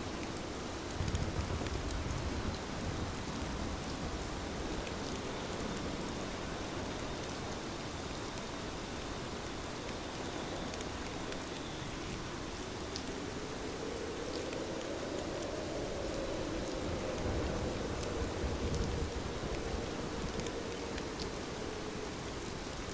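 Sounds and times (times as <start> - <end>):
rain falling: 0.0 - 22.9.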